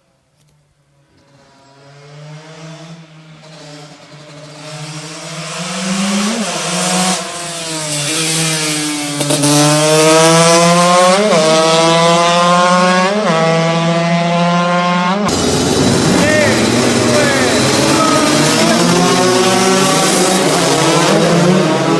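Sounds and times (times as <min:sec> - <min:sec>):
two-stroke motorcycle accelerating: 0:01.1 - 0:21.9.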